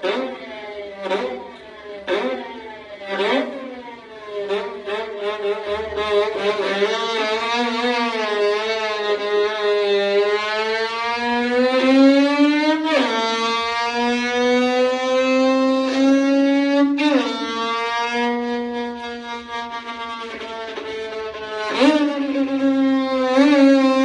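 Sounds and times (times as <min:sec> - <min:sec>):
violin sliding upward in pitch: 0:02.1 - 0:24.0.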